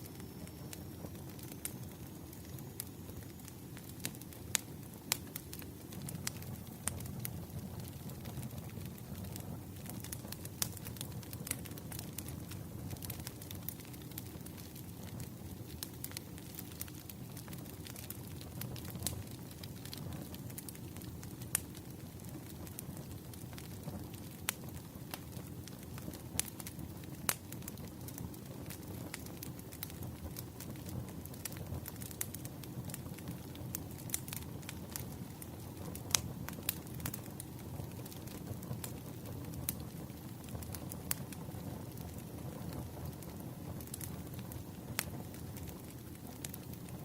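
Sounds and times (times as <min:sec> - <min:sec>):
firewood crackling and popping: 0:00.0 - 0:47.0.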